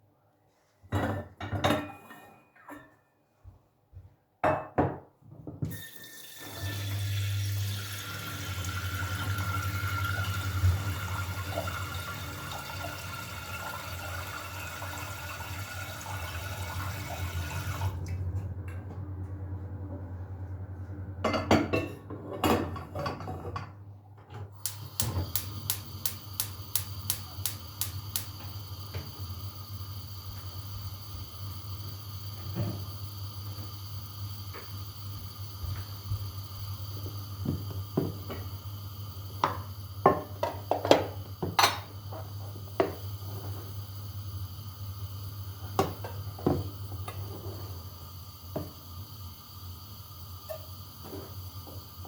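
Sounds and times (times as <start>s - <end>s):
clicks: 24.6s - 28.4s
tap running into sink: 24.6s - 29.2s.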